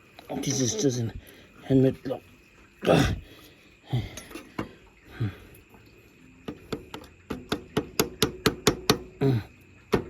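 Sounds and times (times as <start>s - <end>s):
hammer tapping: 6.5s - 9.1s.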